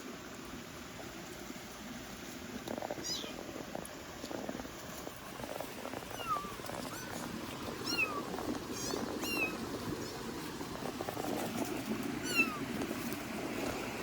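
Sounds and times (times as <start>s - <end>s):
kitten mewing: 3.0s - 3.4s, 6.0s - 9.6s, 12.2s - 12.7s.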